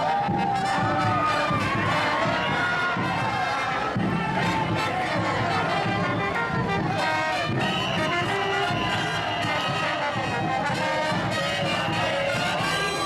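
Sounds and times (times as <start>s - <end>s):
brass horns holding notes: 0.1s - 13.0s.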